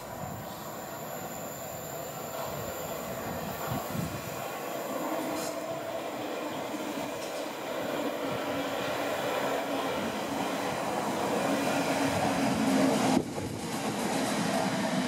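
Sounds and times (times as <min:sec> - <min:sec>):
train hum: 0:00.0 - 0:15.0
train wheels rumbling on rails: 0:00.0 - 0:15.0.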